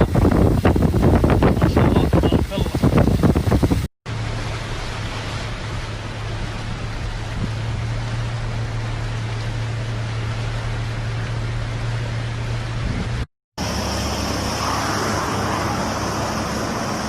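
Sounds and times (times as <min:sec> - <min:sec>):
road rushing noise: 0:00.0 - 0:17.0
car engine hum: 0:04.1 - 0:17.0
high whine: 0:11.1 - 0:17.0.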